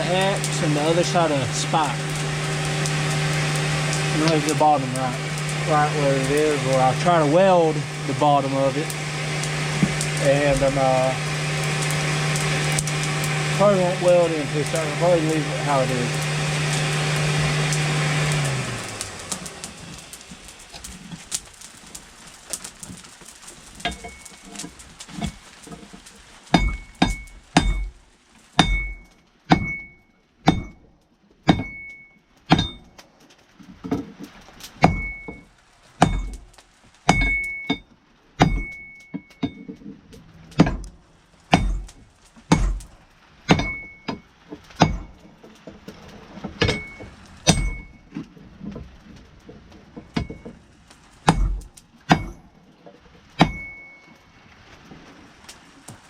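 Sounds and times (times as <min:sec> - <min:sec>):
machine hum winding down: 0:00.0 - 0:21.1
hammer striking steel on anvil: 0:26.6 - 0:27.9, 0:28.6 - 0:30.8, 0:31.5 - 0:32.9, 0:37.1 - 0:37.8, 0:41.5 - 0:41.9, 0:43.5 - 0:44.2, 0:44.8 - 0:45.1, 0:46.6 - 0:47.9, 0:51.3 - 0:52.4, 0:53.4 - 0:54.0.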